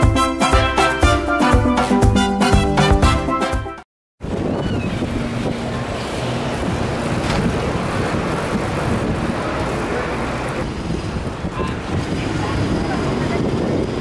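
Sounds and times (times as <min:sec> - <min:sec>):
music: 0:00.0 - 0:03.9
street noise: 0:04.2 - 0:14.0
wind noise on microphone: 0:04.2 - 0:14.0.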